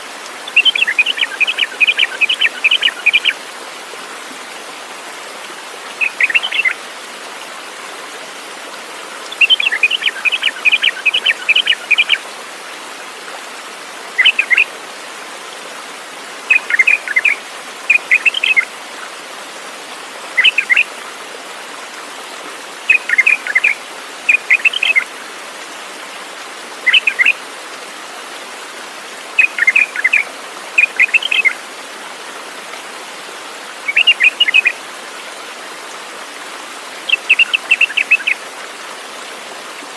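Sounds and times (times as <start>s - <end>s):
bird chirping: 6.0s - 6.8s, 16.5s - 18.6s.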